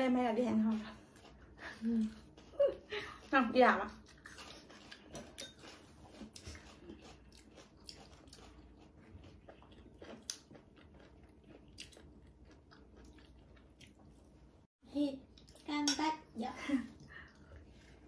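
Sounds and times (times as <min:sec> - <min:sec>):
chewing and biting: 0:03.9 - 0:14.4.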